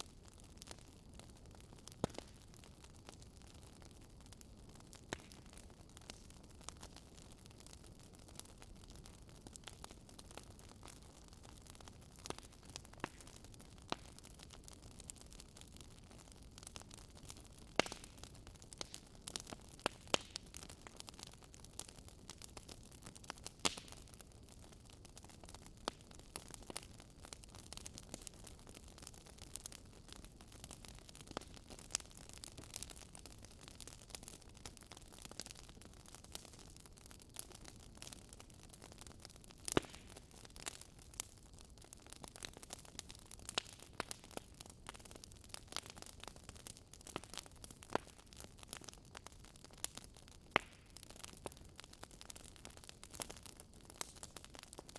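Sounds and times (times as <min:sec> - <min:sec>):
wood fire crackling: 0:00.0 - 0:54.9.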